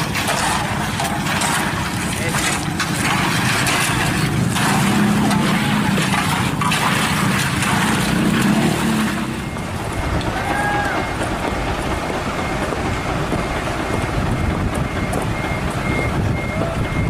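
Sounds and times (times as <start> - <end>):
diesel engine rumbling: 0.0 - 17.0
faint high beeps: 12.3 - 17.0.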